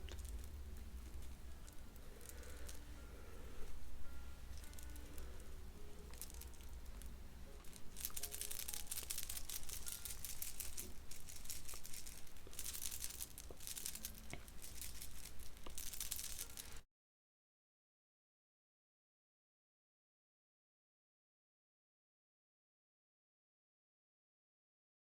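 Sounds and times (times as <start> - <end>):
faint soft music: 0.0 - 16.8
rustling and crinkling: 0.0 - 16.8.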